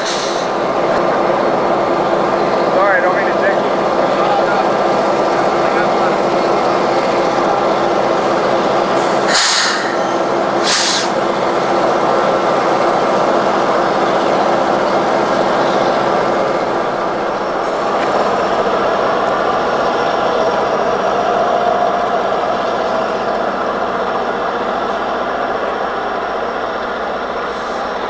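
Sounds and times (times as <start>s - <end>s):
train rumbling past: 0.0s - 28.0s
short hissing bursts: 9.1s - 11.2s.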